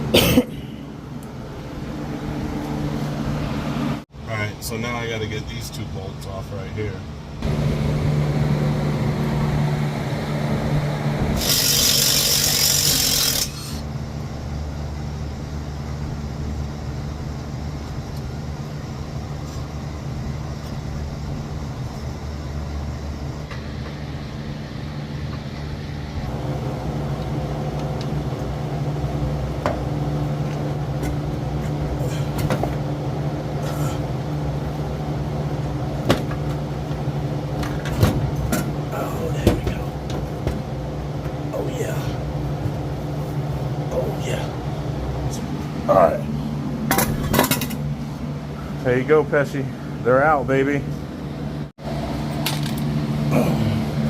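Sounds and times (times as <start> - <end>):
steady low hum: 0.0 - 54.0
loud hiss: 11.4 - 13.9.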